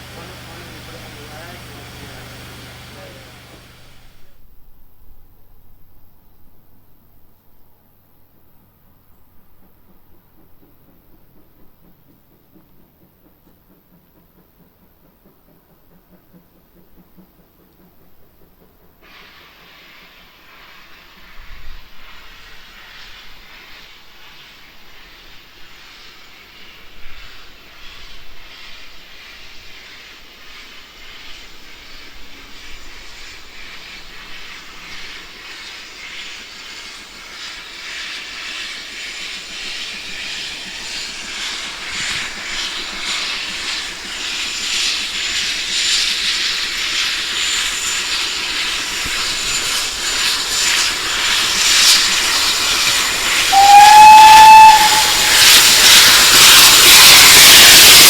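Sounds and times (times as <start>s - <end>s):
short train whistle blast: 0.0s - 4.2s, 52.7s - 58.0s
steam locomotive hissing: 0.0s - 4.4s, 10.1s - 58.0s.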